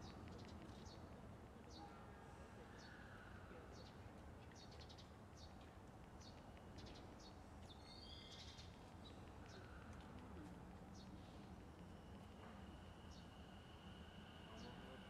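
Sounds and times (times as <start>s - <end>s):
small birds chirping: 3.8s - 10.0s.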